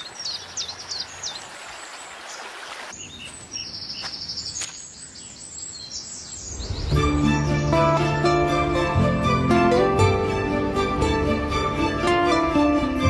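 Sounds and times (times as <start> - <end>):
small birds chirping: 0.0 - 8.0
plucked-string music: 6.9 - 13.0.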